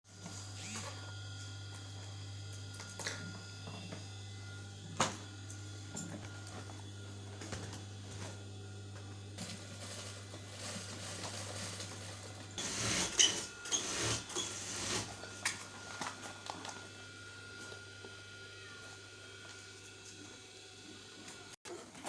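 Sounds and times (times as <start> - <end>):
sewing machine motor hum: 0.1 - 22.0.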